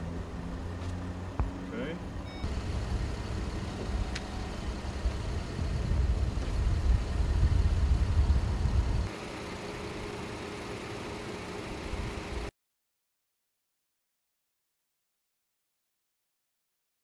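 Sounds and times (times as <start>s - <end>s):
car engine idling: 0.0s - 12.5s.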